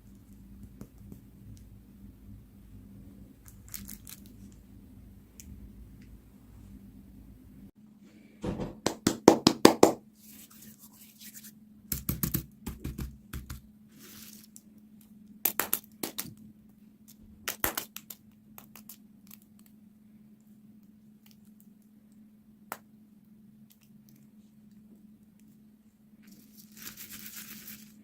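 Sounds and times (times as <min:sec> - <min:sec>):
plastic packaging crinkling: 0:03.4 - 0:04.6, 0:14.0 - 0:14.6, 0:26.2 - 0:28.0.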